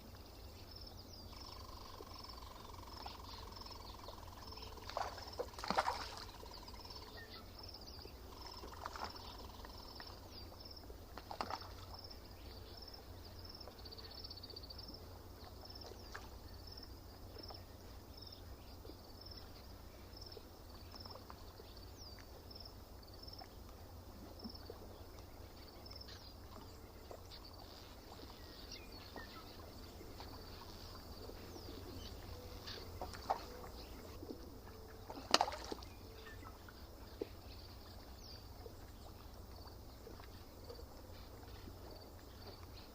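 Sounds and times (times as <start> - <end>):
bird calls: 0.0 - 14.8, 23.4 - 42.9
faint low rumble: 0.0 - 42.9.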